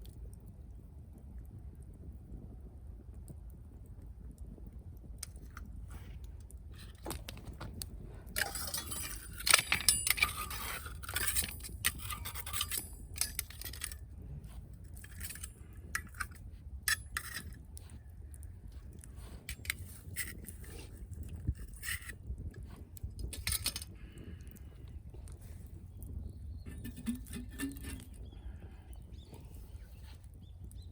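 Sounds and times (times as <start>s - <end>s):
campfire crackling and popping: 0.0s - 30.9s
firewood clattering: 6.8s - 18.0s, 18.9s - 25.6s, 26.6s - 28.3s.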